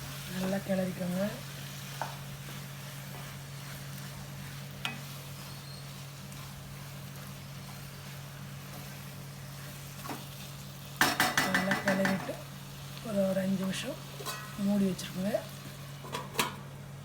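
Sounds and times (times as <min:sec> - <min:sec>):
chicken sizzling in a pan: 0:00.0 - 0:17.0
spatula knocking against pan: 0:11.0 - 0:12.3.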